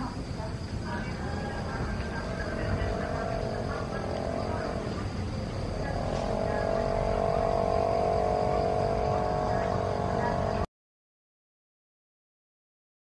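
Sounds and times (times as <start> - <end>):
motor engine running: 1.2 - 10.7.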